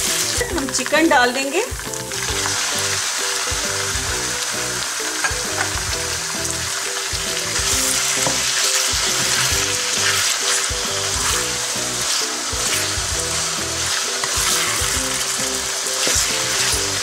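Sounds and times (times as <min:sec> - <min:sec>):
chicken sizzling in hot oil: 0:00.0 - 0:17.0
wooden spatula scraping pan: 0:13.7 - 0:15.2.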